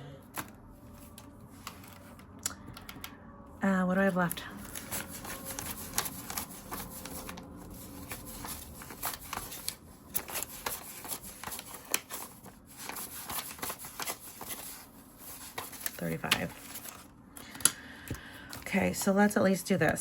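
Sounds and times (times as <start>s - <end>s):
banknotes flipped by hand: 4.6s - 18.6s.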